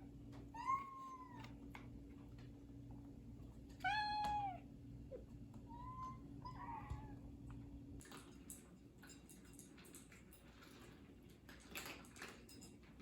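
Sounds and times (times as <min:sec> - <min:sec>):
cat meowing: 0:00.6 - 0:01.5, 0:03.8 - 0:04.6.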